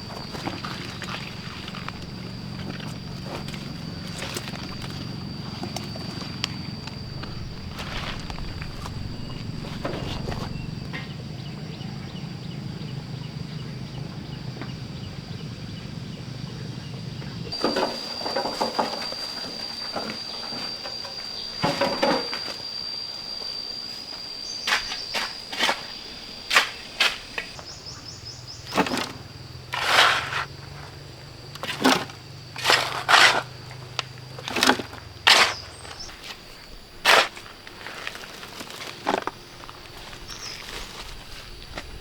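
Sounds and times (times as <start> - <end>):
high-pitched whine: 0.0 - 16.0, 17.3 - 26.9.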